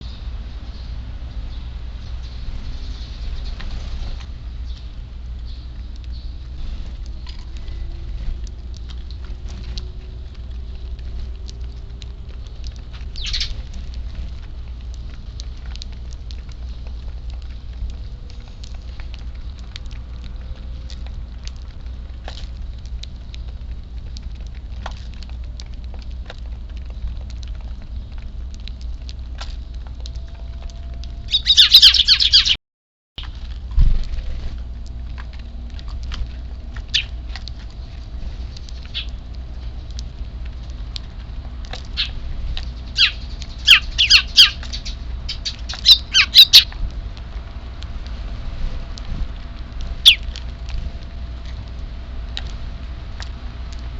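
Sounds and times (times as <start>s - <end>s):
sparrows chirping: 0.0s - 9.8s, 12.4s - 13.8s, 31.2s - 32.6s, 36.9s - 37.9s, 38.5s - 39.2s, 41.9s - 46.8s, 50.0s - 50.3s
steady low hum: 0.0s - 32.6s, 33.2s - 53.9s.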